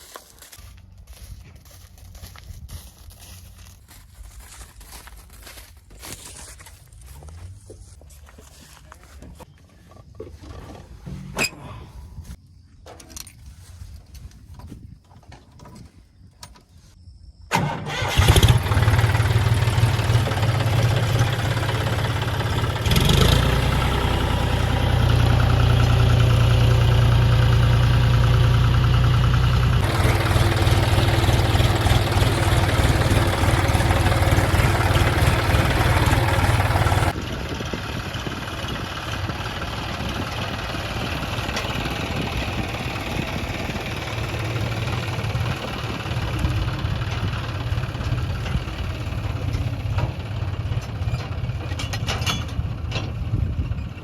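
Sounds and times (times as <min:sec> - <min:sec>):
diesel tractor engine running: 0:17.5 - 0:54.0.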